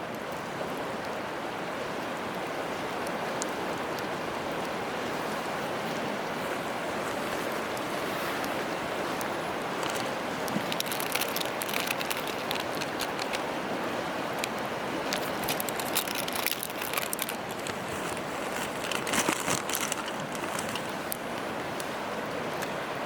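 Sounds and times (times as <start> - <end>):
flowing river water: 0.0 - 23.0
campfire crackling and popping: 9.6 - 13.6, 14.2 - 21.5.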